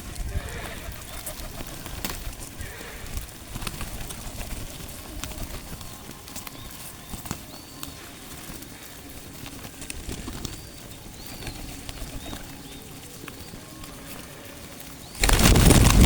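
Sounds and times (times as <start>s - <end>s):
small birds chirping: 0.0s - 16.0s
loud rush of noise: 15.2s - 16.0s.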